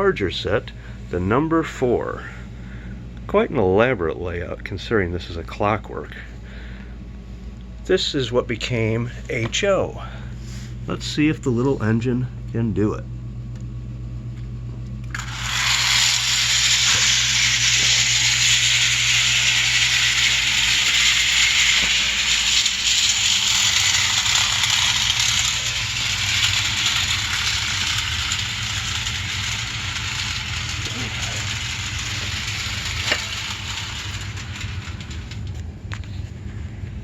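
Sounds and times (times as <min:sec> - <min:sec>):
clockwork toy train whirring: 0:15.0 - 0:36.6.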